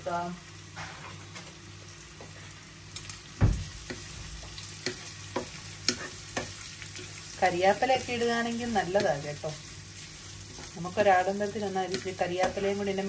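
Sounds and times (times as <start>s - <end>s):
sausage sizzling in a pan: 0.0s - 13.0s
dull thump: 3.4s - 3.7s.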